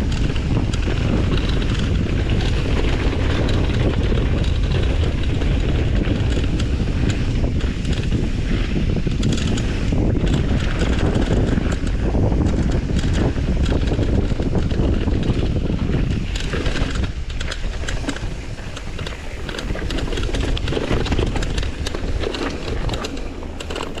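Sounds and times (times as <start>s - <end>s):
bike rattling: 0.0s - 24.0s
wind buffeting microphone: 0.0s - 24.0s
tyres crackling over rocks: 16.0s - 24.0s.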